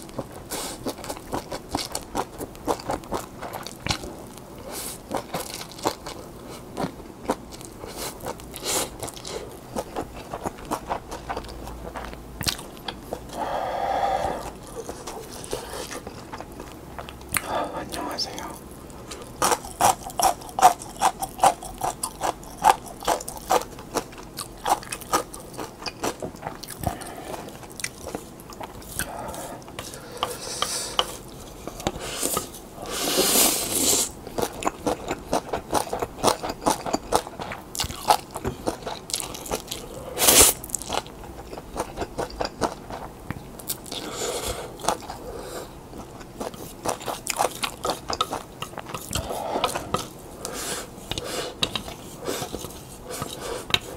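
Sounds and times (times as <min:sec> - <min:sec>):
chewing and slurping noodles: 0:00.0 - 0:17.4, 0:19.0 - 0:53.9.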